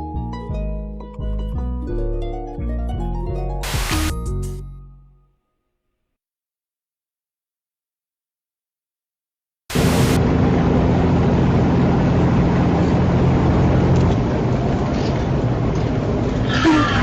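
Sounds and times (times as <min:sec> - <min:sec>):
road noise rush: 0:09.7 - 0:17.0
vehicle engine hum: 0:09.7 - 0:17.0.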